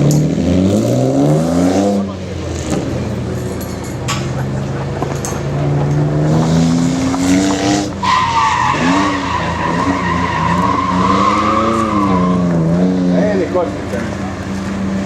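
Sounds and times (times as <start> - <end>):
car engine revving: 0.0 - 15.0
tyres squealing: 3.0 - 15.0.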